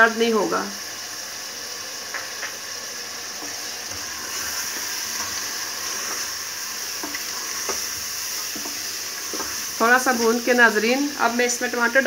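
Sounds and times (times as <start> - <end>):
meat frying in oil: 0.0 - 12.0.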